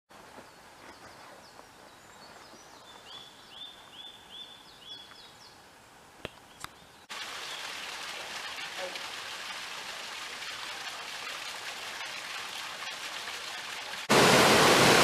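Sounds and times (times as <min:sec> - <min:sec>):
birds singing: 0:00.4 - 0:05.6
waterfall rushing: 0:13.0 - 0:15.0.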